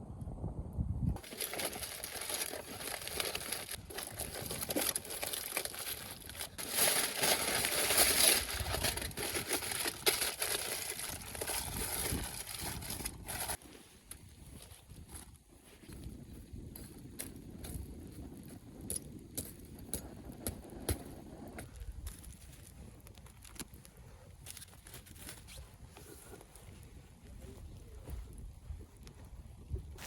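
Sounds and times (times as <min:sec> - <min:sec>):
aluminium foil crinkling: 0:01.2 - 0:13.6, 0:21.9 - 0:25.6.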